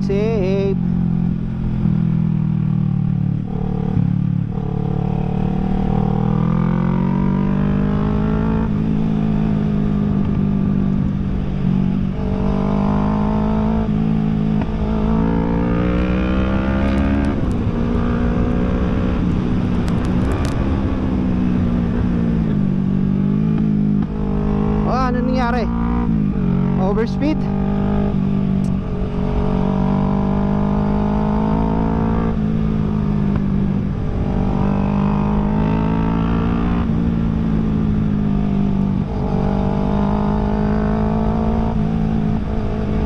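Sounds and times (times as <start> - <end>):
motorcycle engine revving while riding: 0.0 - 43.0.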